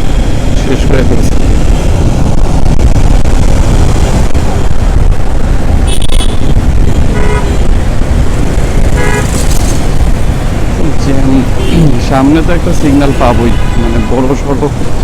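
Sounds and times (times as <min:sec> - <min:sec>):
heavy wind noise: 0:00.0 - 0:15.0
road rumble: 0:00.0 - 0:15.0
vehicle horn toots: 0:05.9 - 0:07.6, 0:08.9 - 0:09.4, 0:11.6 - 0:12.0, 0:12.9 - 0:14.4.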